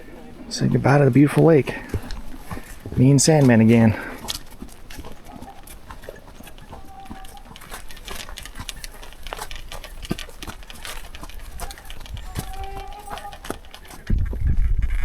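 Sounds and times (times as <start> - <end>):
horse hooves clopping: 0.0 - 15.0.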